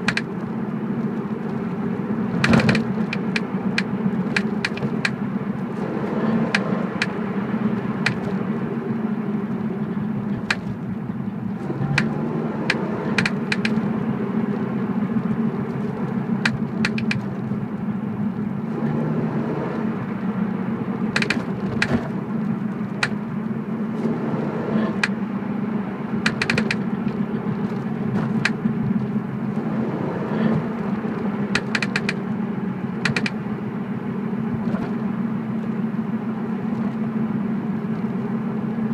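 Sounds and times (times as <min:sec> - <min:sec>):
sharp clicks from car rear: 0:00.0 - 0:01.7, 0:02.4 - 0:05.2, 0:06.5 - 0:08.4, 0:10.3 - 0:10.9, 0:11.8 - 0:13.9, 0:15.2 - 0:17.5, 0:21.1 - 0:23.3, 0:24.9 - 0:25.2, 0:26.2 - 0:29.2, 0:30.4 - 0:32.3, 0:33.0 - 0:33.4
car road noise: 0:00.0 - 0:38.9.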